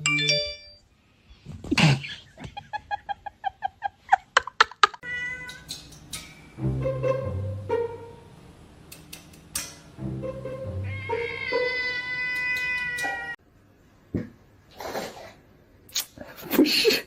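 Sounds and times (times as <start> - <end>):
cat meowing: 5.0 - 5.7, 10.8 - 13.4
music: 6.4 - 8.5, 9.9 - 12.0.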